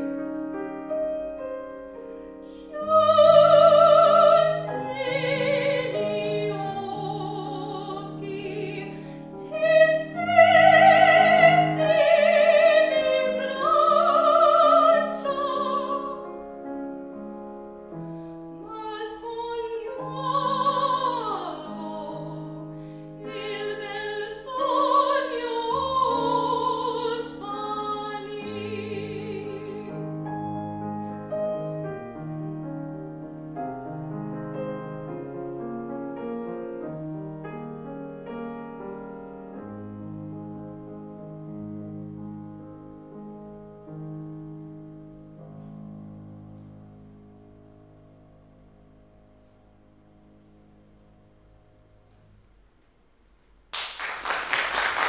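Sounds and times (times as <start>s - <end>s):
piano accompaniment: 0.0s - 55.0s
operatic singing: 2.6s - 16.2s, 23.2s - 30.0s.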